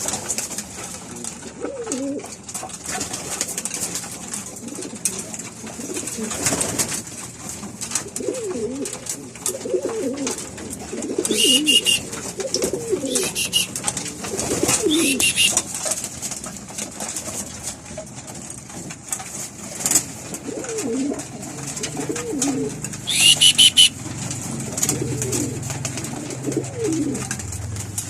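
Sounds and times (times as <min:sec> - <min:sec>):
pigeons cooing: 0:01.2 - 0:03.1, 0:04.2 - 0:16.0, 0:20.2 - 0:28.0
scratchy clicks: 0:11.1 - 0:13.9
short high-pitched peeps: 0:11.3 - 0:12.1, 0:13.1 - 0:13.8, 0:14.9 - 0:15.6, 0:23.0 - 0:24.0.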